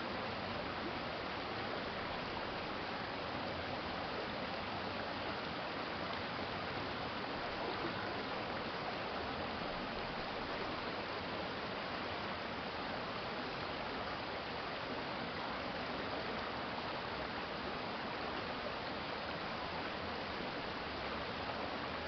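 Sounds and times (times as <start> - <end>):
stream water running: 0.0 - 22.0.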